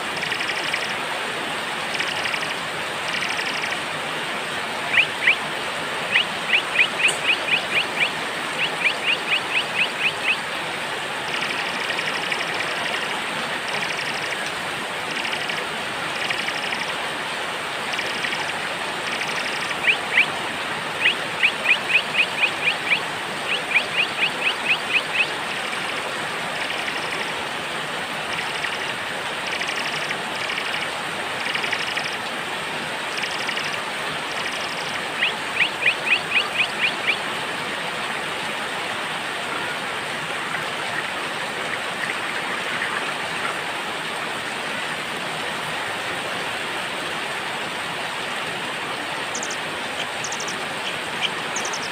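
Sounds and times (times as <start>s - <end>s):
steady rain: 0.0s - 51.9s
small birds chirping: 4.9s - 5.4s, 6.1s - 10.4s, 19.2s - 20.3s, 21.0s - 25.8s, 33.2s - 37.2s, 49.3s - 51.9s.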